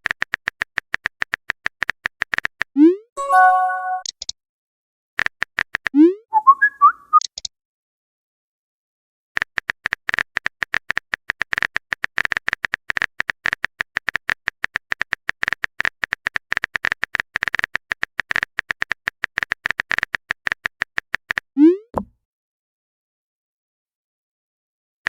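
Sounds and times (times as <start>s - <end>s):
rising pop: 22.0s - 22.2s.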